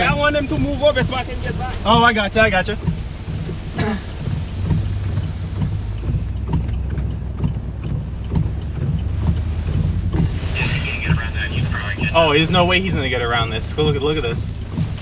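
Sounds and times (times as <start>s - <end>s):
wind buffeting a truck: 0.0s - 15.0s
faint taps: 2.7s - 10.3s.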